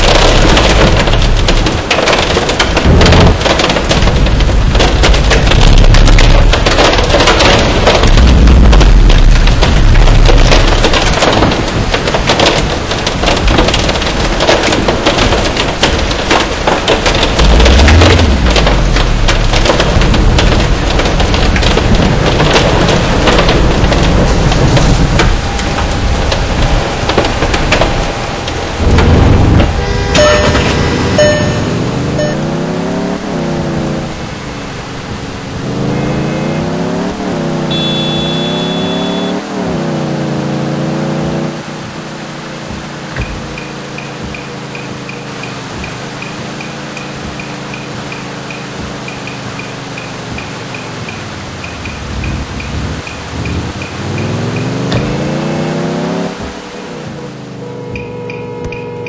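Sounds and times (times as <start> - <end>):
hailstones ticking on a car: 0.0 - 32.6, 33.5 - 39.4, 41.4 - 59.0
deep rumble: 0.0 - 37.9
heavy rain on a car: 0.0 - 59.0
steady high tone: 30.1 - 32.5.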